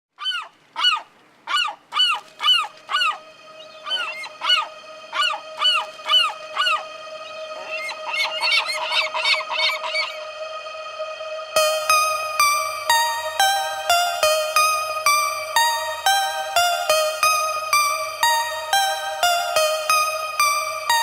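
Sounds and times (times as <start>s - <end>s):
gulls calling: 0.2s - 10.3s
steady held tone: 10.1s - 21.0s.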